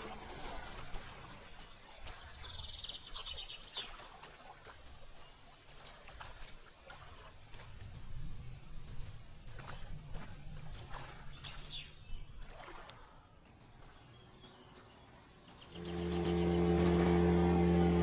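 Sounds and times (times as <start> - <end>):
low outdoor rumble: 15.6 - 18.0.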